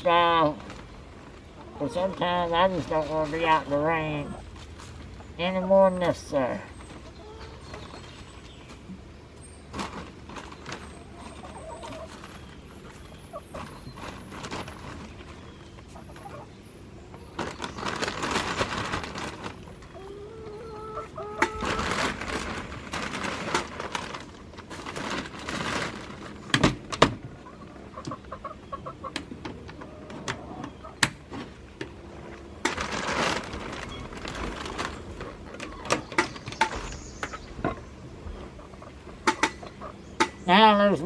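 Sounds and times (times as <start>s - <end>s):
hens clucking: 0.2s - 4.5s, 5.5s - 24.2s, 27.2s - 31.1s, 31.8s - 41.0s
loud rustling: 21.5s - 26.9s, 31.4s - 36.9s.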